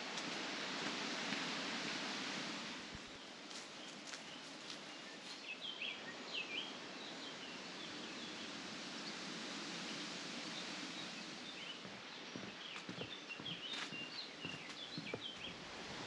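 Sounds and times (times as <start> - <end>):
steady outdoor hiss: 0.0 - 16.0
small birds chirping: 3.0 - 9.2, 9.9 - 16.0.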